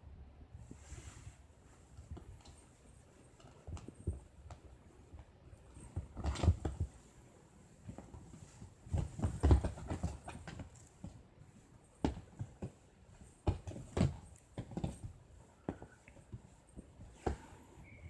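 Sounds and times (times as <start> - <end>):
soft knocks and thumps: 7.8 - 11.2, 11.9 - 17.8.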